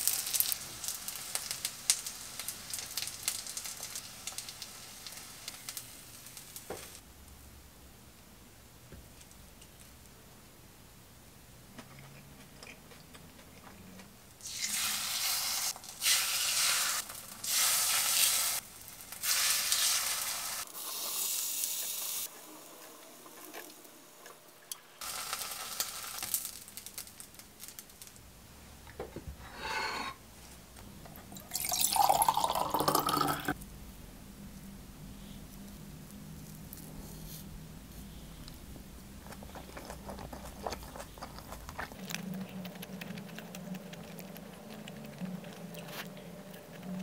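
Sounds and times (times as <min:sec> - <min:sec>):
beef sizzling in oil: 0:00.0 - 0:07.0, 0:14.4 - 0:22.3, 0:25.0 - 0:28.0.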